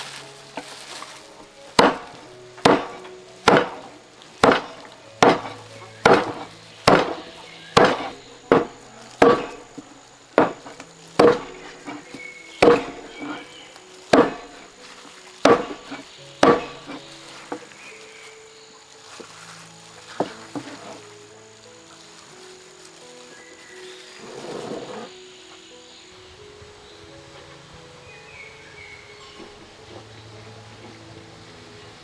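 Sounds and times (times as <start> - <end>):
chopping wood knocks: 1.7 - 14.8, 15.4 - 17.7.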